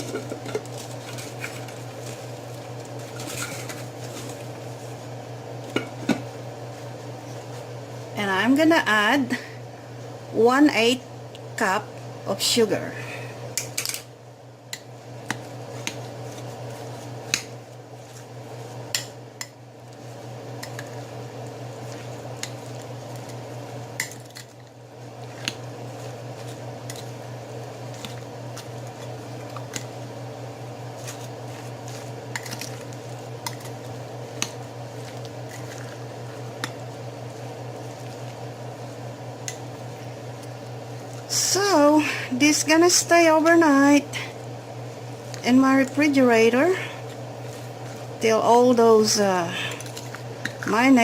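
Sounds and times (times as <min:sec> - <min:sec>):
steady low hum: 0:00.0 - 0:51.0
wet squishing of salad mixing: 0:15.2 - 0:18.4, 0:30.9 - 0:39.8, 0:47.0 - 0:48.2, 0:49.7 - 0:50.9.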